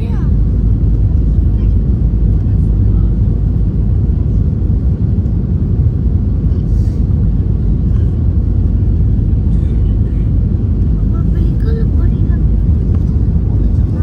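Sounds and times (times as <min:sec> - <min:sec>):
aircraft cabin engine rumble: 0:00.0 - 0:14.0.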